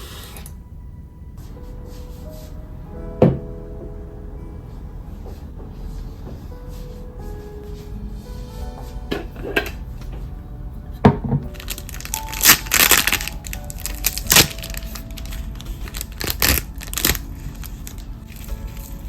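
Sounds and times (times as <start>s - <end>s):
soft background music: 0.0s - 19.0s
crackling crunching handling noise: 7.3s - 19.0s.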